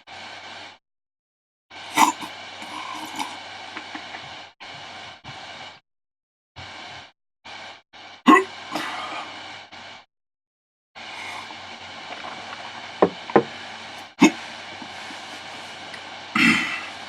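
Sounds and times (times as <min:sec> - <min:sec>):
man breathing heavily: 0:13.0 - 0:17.0.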